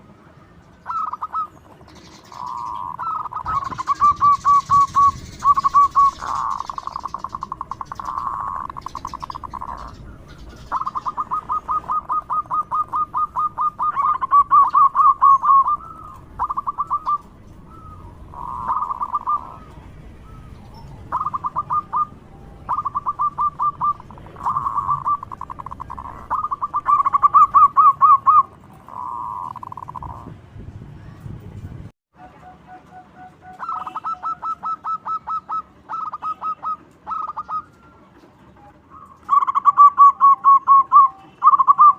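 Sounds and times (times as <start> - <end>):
dove rapid staccato cooing: 0.8 - 19.7, 20.3 - 30.3, 33.2 - 37.7.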